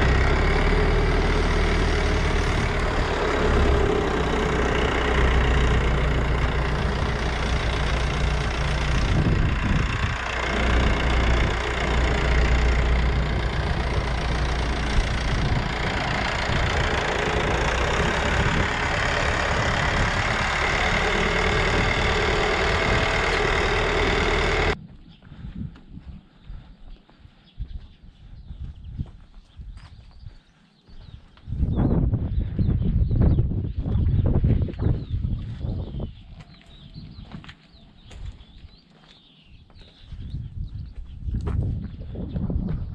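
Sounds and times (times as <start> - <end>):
tractor engine running: 0.0 - 24.8.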